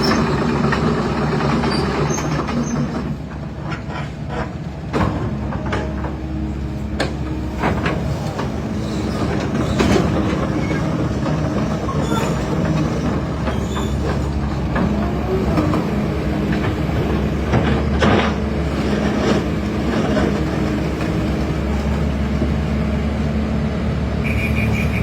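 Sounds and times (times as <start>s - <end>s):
excavator diesel engine running: 0.0s - 25.0s
metallic clanks and knocks: 0.1s - 8.5s.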